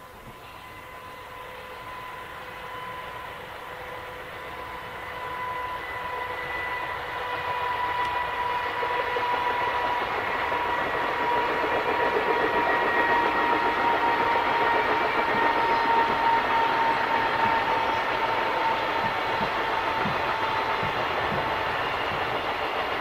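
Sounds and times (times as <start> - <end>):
wheels rumbling on rail: 0.0 - 23.0
traction motor whine: 0.1 - 23.0.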